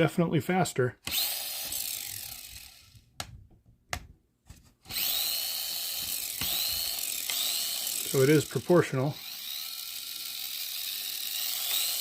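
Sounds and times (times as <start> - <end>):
toy car electric motor whining: 1.1 - 3.0, 4.9 - 12.0.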